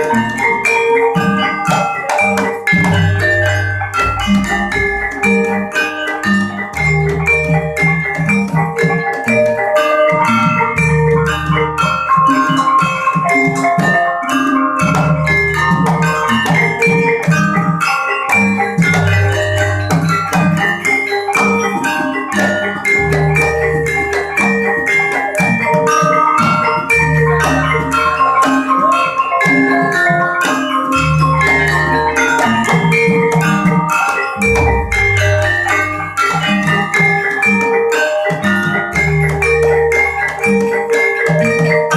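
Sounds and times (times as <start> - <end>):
gamelan music: 0.0 - 41.9.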